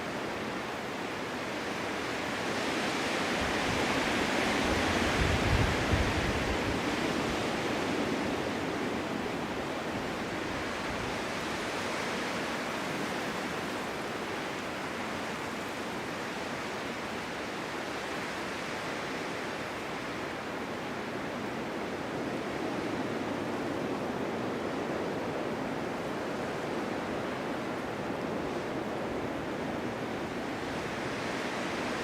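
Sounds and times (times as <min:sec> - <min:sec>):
snowstorm wind blowing: 0:00.0 - 0:32.0
low wind buffeting: 0:03.2 - 0:11.5.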